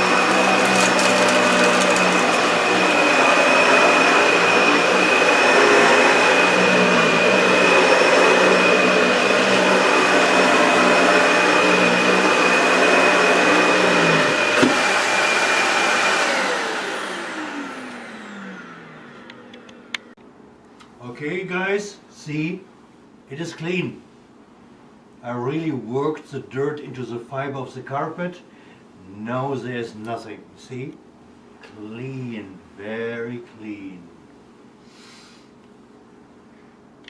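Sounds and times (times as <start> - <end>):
vacuum cleaner running on carpet: 0.0 - 19.9.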